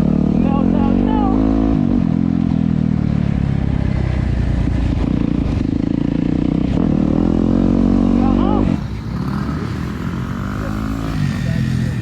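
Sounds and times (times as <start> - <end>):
dirt bike engine running: 4.5 - 12.0.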